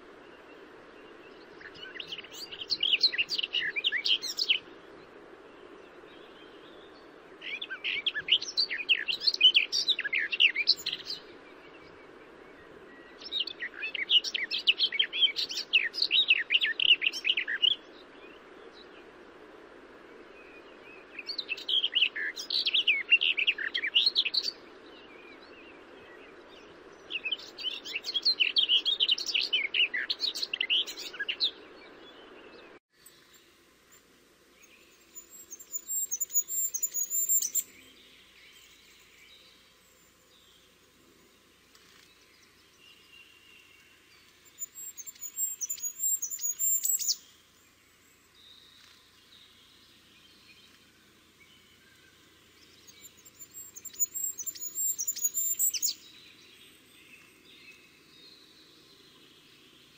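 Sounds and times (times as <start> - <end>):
high thin birdsong: 0.0 - 19.3, 20.0 - 59.9
steady background hiss: 0.0 - 59.9
birds chirping rapidly: 34.6 - 40.8, 41.4 - 59.9.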